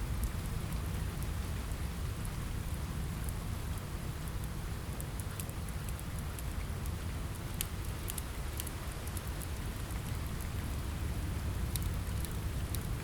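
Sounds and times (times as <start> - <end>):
steady rain: 0.0 - 13.0
wood fire crackling: 0.0 - 13.0.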